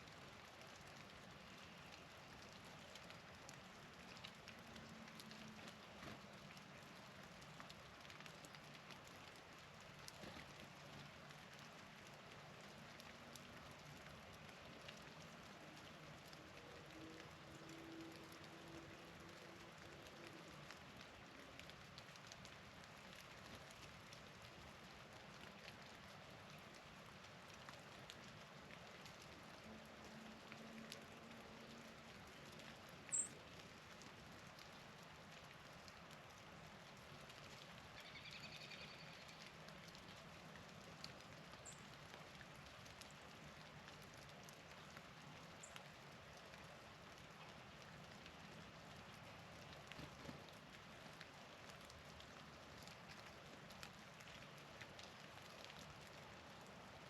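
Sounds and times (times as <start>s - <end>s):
wet snow or rain pattering: 0.0s - 57.0s
light ticks: 0.6s - 24.6s, 37.3s - 47.5s, 49.0s - 56.2s.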